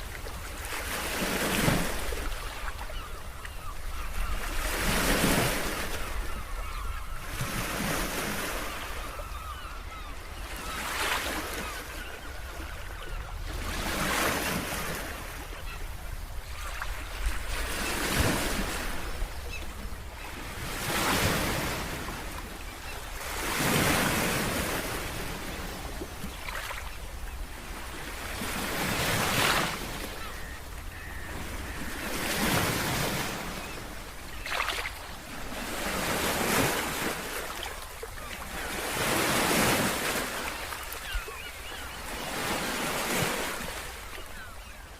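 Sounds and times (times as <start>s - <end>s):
waves breaking and washing in: 0.0s - 44.9s.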